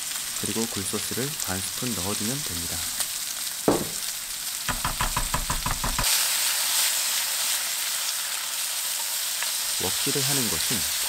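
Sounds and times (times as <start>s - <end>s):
food sizzling in a frying pan: 0.0s - 11.0s
sharp knock: 3.7s - 4.0s.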